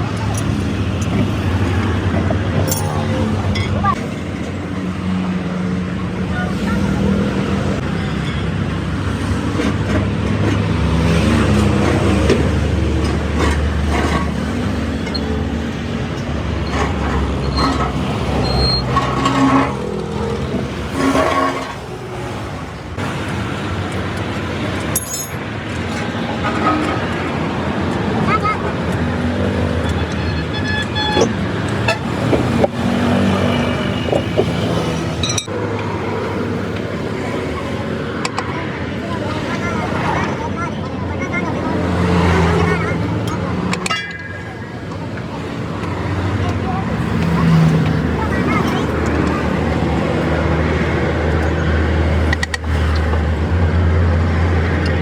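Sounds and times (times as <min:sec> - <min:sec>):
road traffic: 0:00.0 - 0:55.0
vehicle engine humming: 0:00.0 - 0:55.0
car horn: 0:29.8 - 0:32.1.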